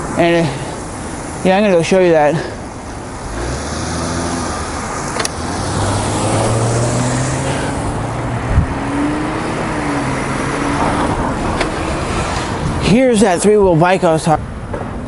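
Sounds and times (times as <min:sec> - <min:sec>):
road noise: 0:00.0 - 0:15.0
vehicle engine accelerating: 0:03.0 - 0:12.8
sharp click: 0:05.2 - 0:05.4.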